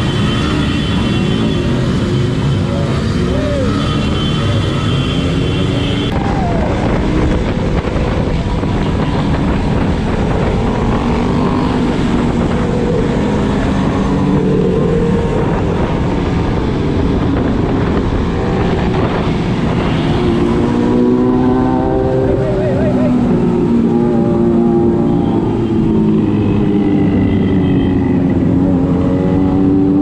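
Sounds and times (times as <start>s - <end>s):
motorcycle engines running: 0.0s - 30.0s
steady rushing noise: 2.3s - 24.9s.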